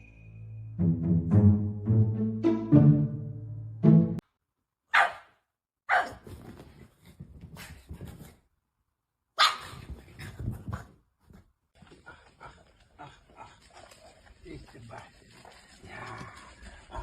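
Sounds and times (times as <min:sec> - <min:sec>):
dog barking: 0:04.9 - 0:06.2, 0:09.4 - 0:09.8.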